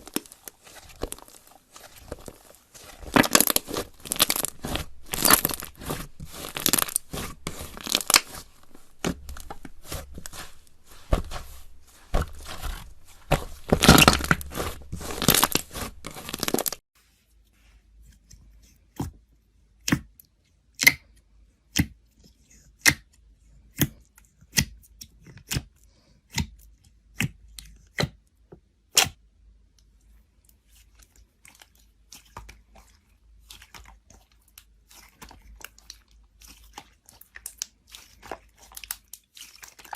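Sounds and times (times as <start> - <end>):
slime crackling and popping: 0.0 - 16.8, 35.0 - 39.9.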